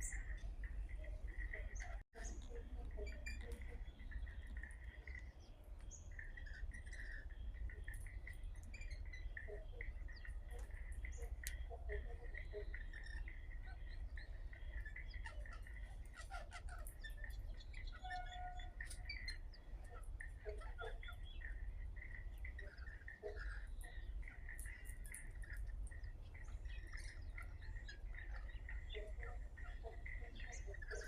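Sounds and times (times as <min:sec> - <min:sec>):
birds chirping and whistling: 0:12.4 - 0:31.0.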